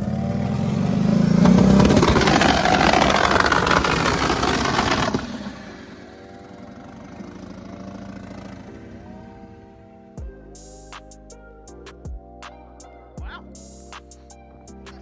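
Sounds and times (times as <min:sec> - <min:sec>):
engine running at high revs: 0:00.0 - 0:10.1
background music: 0:00.0 - 0:15.0.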